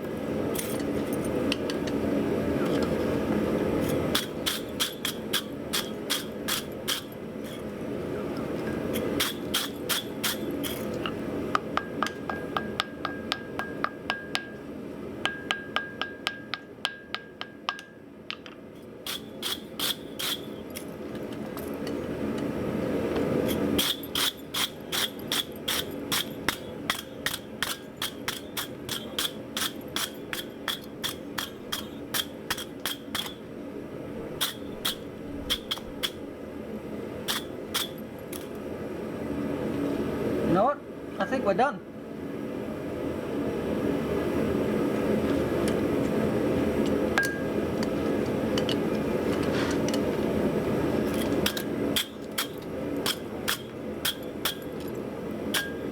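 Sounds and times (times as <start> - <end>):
hammer ringing on anvil: 11.8 - 14.6, 15.2 - 18.0, 47.2 - 47.6, 55.6 - 55.9.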